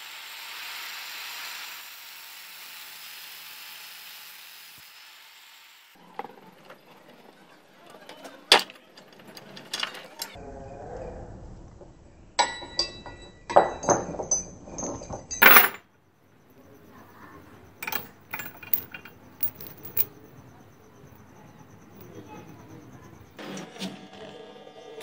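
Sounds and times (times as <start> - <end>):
chain rattling against metal: 12.5 - 15.8, 17.8 - 20.2.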